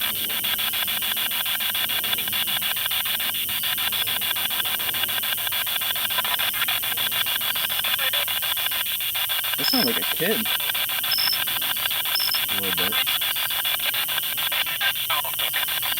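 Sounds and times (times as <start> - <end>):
radio static chopped into clicks: 7.3 - 15.9.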